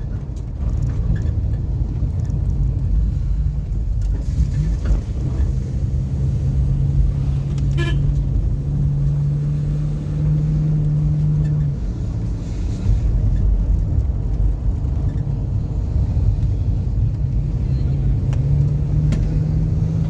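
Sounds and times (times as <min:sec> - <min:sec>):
road rumble: 0:00.0 - 0:20.0
car horn toot: 0:07.6 - 0:08.4.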